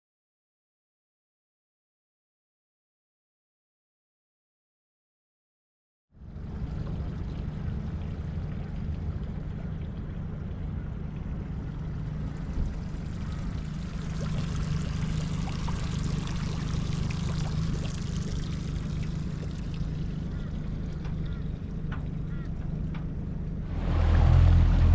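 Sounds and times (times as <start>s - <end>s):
boat motor hum: 6.2s - 24.9s
water splashing along hull: 6.2s - 24.9s.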